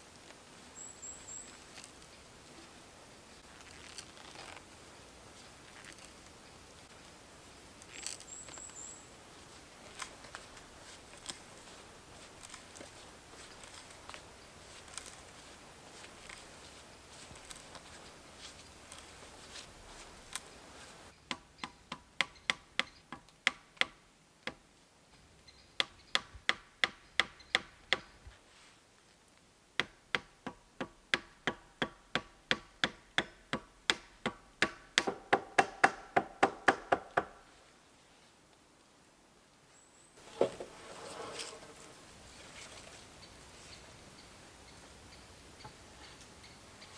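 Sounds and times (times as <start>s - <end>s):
sharp knocks: 32.9s - 37.4s.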